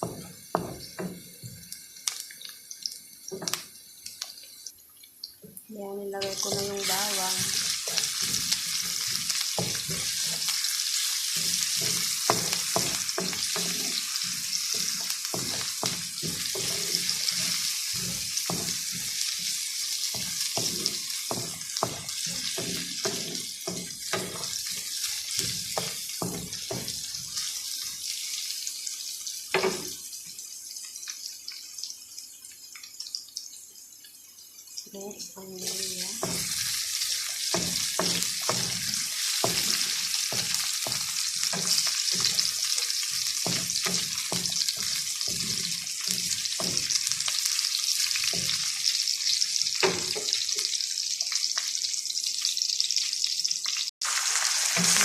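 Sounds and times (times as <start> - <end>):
garlic and onion sizzling in oil: 0.0 - 55.0
utensil scraping a pan: 6.2 - 19.2.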